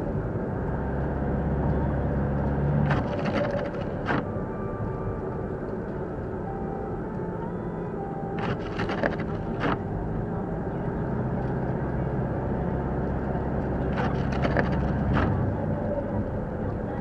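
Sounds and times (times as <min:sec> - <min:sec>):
car engine and tyres rumbling: 0:00.0 - 0:17.0
sharp clicks and knocks: 0:02.9 - 0:04.3.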